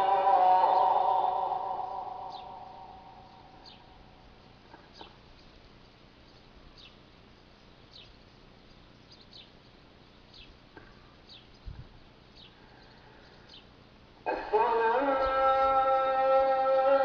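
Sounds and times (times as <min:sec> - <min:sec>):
faint bird chirps: 0:00.6 - 0:13.8.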